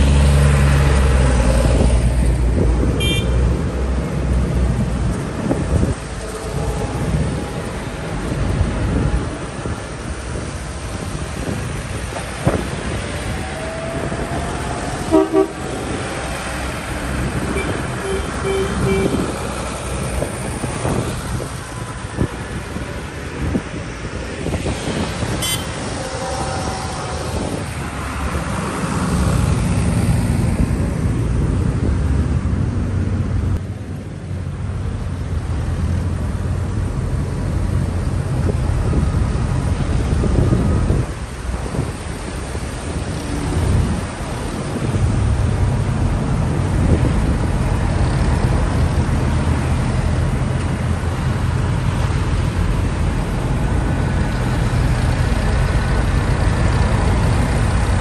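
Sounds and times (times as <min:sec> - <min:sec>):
tractor engines running: 0:00.0 - 0:58.0
horn toots: 0:03.0 - 0:03.5, 0:15.0 - 0:16.0, 0:17.5 - 0:19.3, 0:25.4 - 0:27.6.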